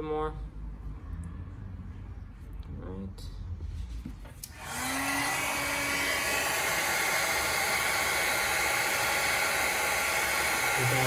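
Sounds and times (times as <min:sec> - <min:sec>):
heat gun fan whirring: 0:04.4 - 0:11.0.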